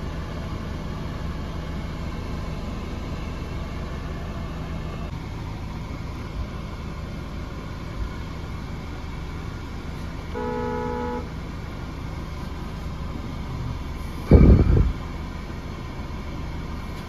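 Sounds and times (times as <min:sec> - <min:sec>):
car road and engine rumble: 0:00.0 - 0:17.0
car horn honking: 0:10.2 - 0:11.6.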